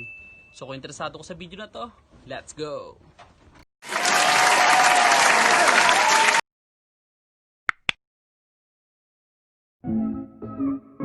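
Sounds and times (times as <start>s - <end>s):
applause and crowd cheering: 3.8s - 6.4s.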